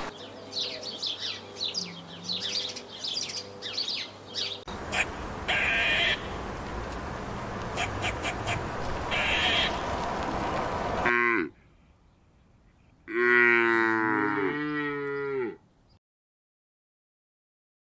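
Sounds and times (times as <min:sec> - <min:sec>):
steady outdoor hiss: 0:00.0 - 0:13.3, 0:14.2 - 0:16.0
cow mooing: 0:11.0 - 0:11.5, 0:13.1 - 0:15.6.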